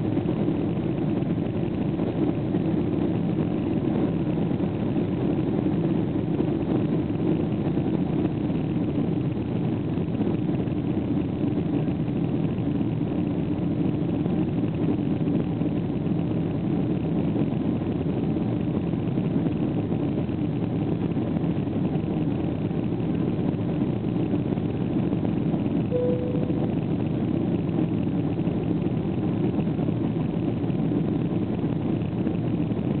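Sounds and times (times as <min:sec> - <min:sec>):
short faint tone: 0:25.9 - 0:27.0
jet engine cabin drone: 0:25.9 - 0:33.0.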